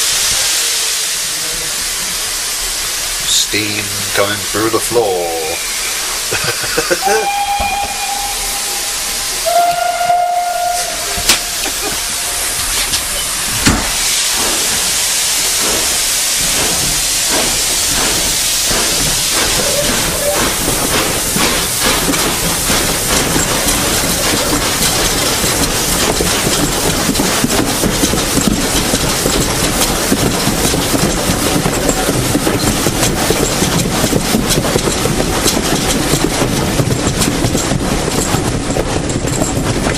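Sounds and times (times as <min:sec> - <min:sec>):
steam hissing: 0:00.0 - 0:36.8
steady locomotive beats: 0:01.6 - 0:39.9
steam locomotive whistle blasts: 0:07.0 - 0:13.0.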